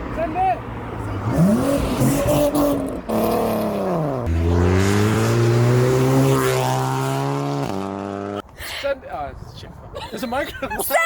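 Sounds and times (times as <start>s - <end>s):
car engine revving: 1.0s - 8.4s.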